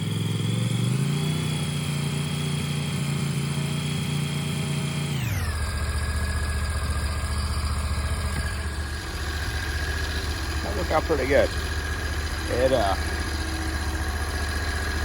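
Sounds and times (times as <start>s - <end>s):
chainsaw revving and idling: 0.0s - 15.0s.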